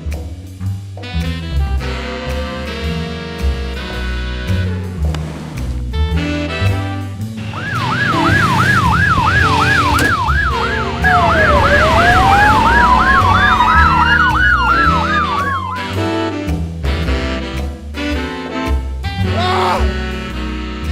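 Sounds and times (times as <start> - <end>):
siren wail: 7.4 - 16.1
siren yelp: 7.4 - 16.1.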